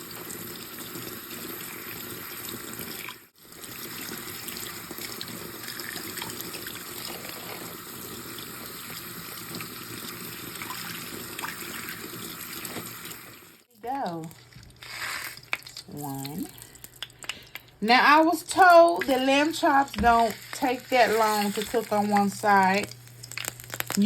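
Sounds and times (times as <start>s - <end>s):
hot oil sizzling in a skillet: 14.8s - 15.5s, 19.4s - 24.0s.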